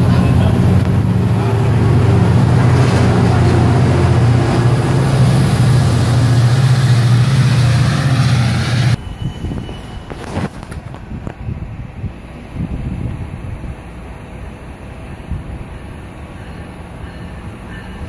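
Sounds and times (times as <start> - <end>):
train cars rumbling: 0.0 - 11.5, 12.2 - 18.0
diesel locomotive engine drone: 0.0 - 18.0
wind noise on microphone: 8.9 - 14.2, 15.0 - 16.1.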